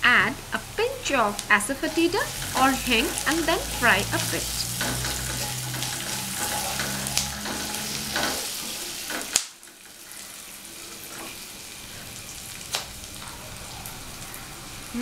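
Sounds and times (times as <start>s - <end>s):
onions sizzling in hot oil: 0.0s - 15.0s
wooden spatula scraping pan: 2.0s - 9.3s.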